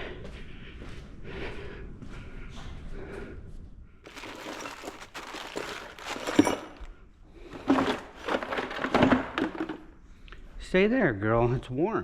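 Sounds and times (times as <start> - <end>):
rustling and crinkling of packaging: 4.0 - 10.0.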